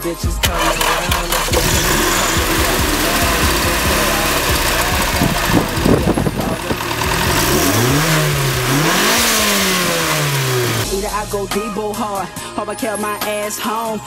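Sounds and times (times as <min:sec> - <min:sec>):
car engine revving: 0:00.4 - 0:10.9.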